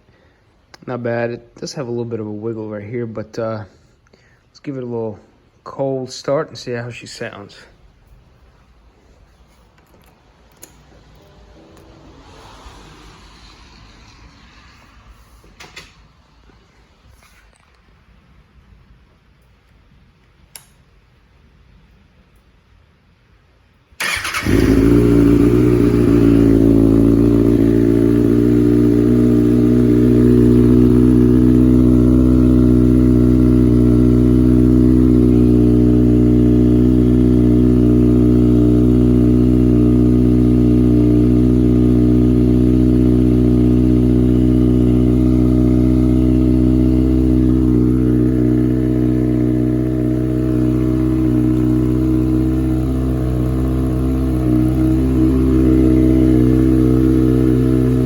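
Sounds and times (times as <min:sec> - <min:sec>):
motorcycle engine starting and idling: 0:24.0 - 0:58.0.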